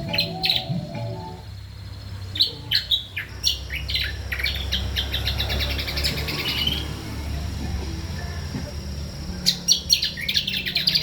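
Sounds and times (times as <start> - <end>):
songbird whistled chirps: 0.0 - 1.5, 9.3 - 11.0.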